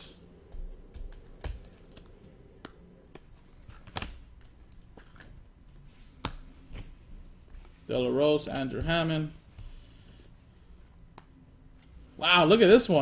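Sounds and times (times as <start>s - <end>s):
cards clicking and tapping on table: 0.4s - 4.2s.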